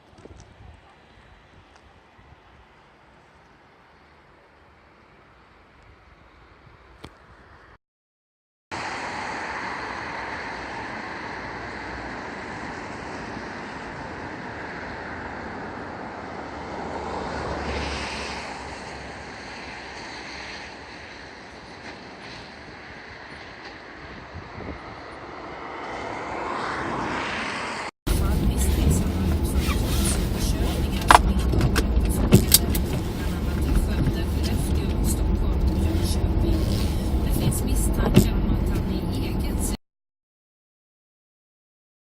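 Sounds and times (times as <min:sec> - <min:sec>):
vehicle driving at speed: 0:08.8 - 0:39.8.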